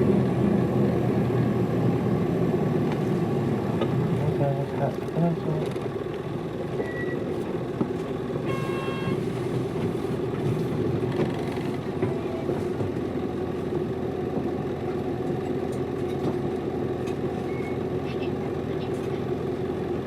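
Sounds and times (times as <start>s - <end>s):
bus diesel engine running: 0.0s - 20.0s
electronic beep: 6.8s - 7.2s.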